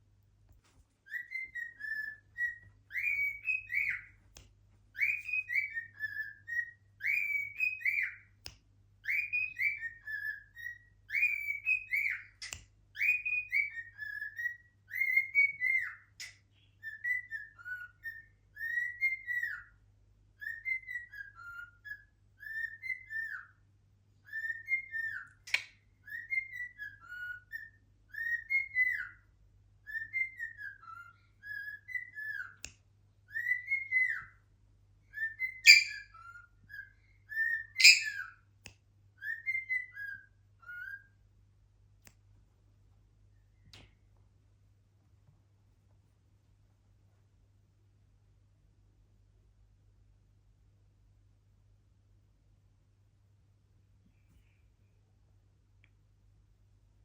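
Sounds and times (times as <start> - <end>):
cockatiel whistling: 1.1 - 4.2, 5.0 - 8.3, 9.0 - 19.8, 20.4 - 23.6, 24.2 - 29.2, 29.8 - 32.6, 33.3 - 34.4, 35.1 - 38.4, 39.2 - 41.2.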